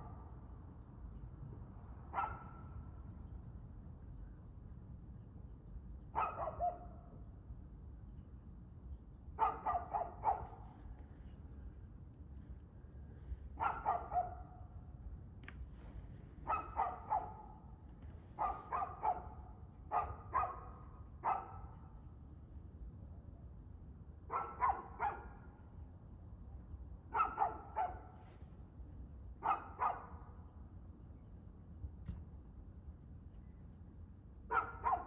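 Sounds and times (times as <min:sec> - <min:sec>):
dog barking: 0:02.2 - 0:02.6, 0:06.2 - 0:06.9, 0:09.4 - 0:10.6, 0:13.6 - 0:14.5, 0:16.4 - 0:17.6, 0:18.4 - 0:21.8, 0:24.3 - 0:25.4, 0:27.1 - 0:28.2, 0:29.4 - 0:30.1, 0:34.5 - 0:35.0.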